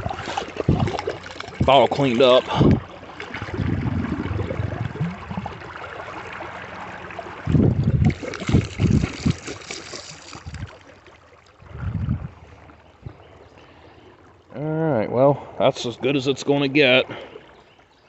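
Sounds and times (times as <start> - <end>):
glass bottle sloshing and gurgling: 0.0 - 10.9
creek water running: 0.0 - 18.0.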